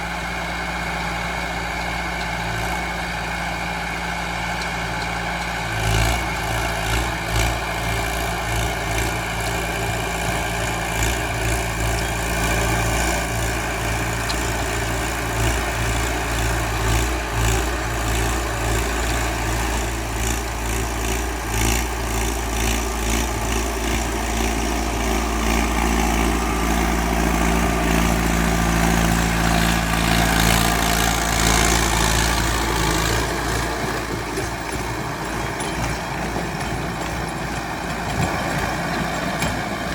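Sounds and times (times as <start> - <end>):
tractor diesel engine running: 0.0 - 39.9
rotavator turning: 10.4 - 39.9.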